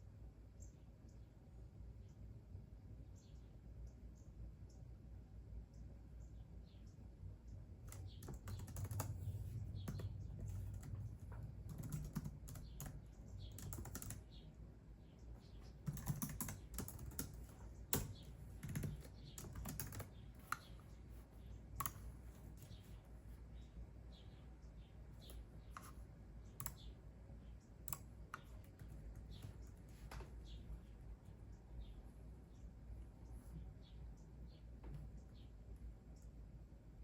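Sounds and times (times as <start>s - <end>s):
typing on computer keyboard: 7.8s - 14.4s, 15.6s - 20.8s, 21.8s - 22.1s, 25.2s - 26.9s, 27.8s - 30.3s.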